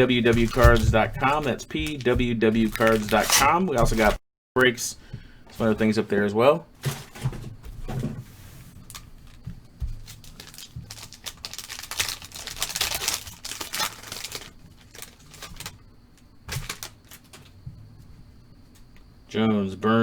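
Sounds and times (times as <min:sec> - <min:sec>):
foil packaging crinkling and tearing: 0:00.0 - 0:04.2, 0:08.8 - 0:15.8, 0:16.5 - 0:17.5.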